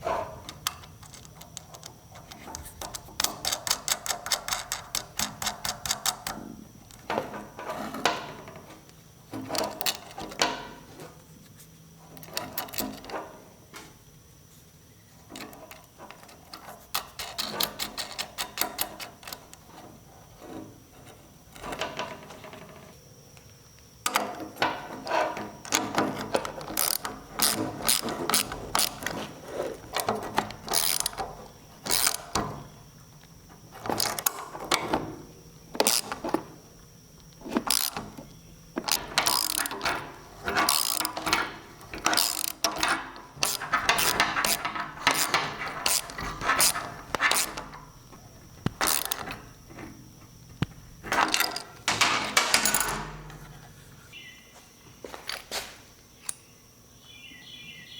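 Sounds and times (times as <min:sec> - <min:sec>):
ratchet wrench clicking: 0:26.8 - 0:29.1, 0:30.4 - 0:32.4, 0:35.8 - 0:36.2, 0:37.6 - 0:38.1, 0:38.8 - 0:47.9, 0:48.6 - 0:49.4.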